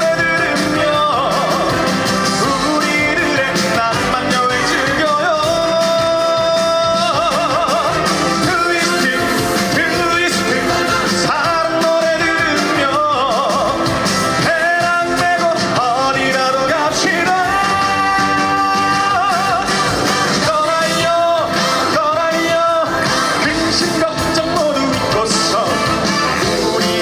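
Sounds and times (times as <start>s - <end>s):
man singing with vibrato: 0.0s - 27.0s
upbeat dance band: 0.0s - 27.0s.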